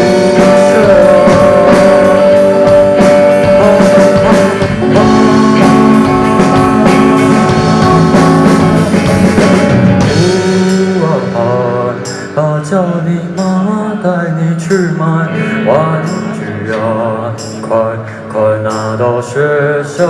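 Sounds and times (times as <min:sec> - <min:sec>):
drum kit with cymbal hits: 0:00.0 - 0:14.0, 0:14.6 - 0:19.4
electric guitar long notes: 0:00.0 - 0:20.0.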